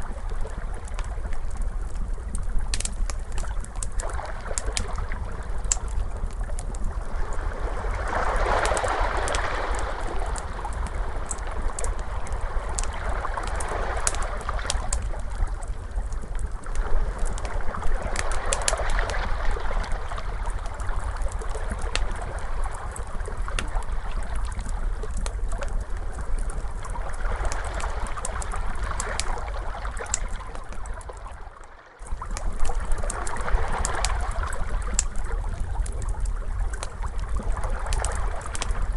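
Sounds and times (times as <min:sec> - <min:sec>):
steady low rumble: 0:00.0 - 0:31.3
wood fire crackling: 0:00.0 - 0:31.4, 0:32.0 - 0:38.9
ocean waves washing: 0:07.0 - 0:15.3.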